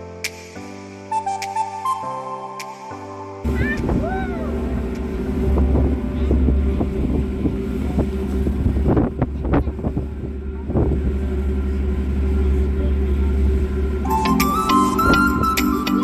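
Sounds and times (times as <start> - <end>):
music: 0.0 - 16.0
ferry engines droning: 3.4 - 16.0.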